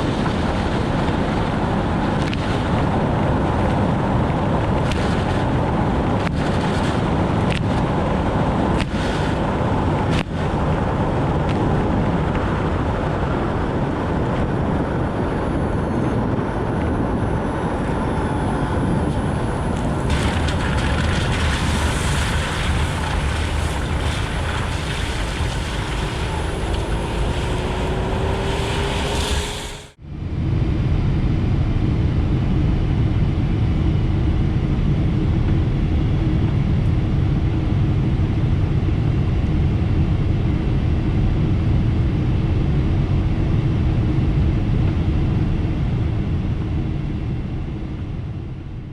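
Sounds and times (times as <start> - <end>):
faint rising whine: 8.2 - 48.9
tyres on wet road spray: 20.1 - 30.0.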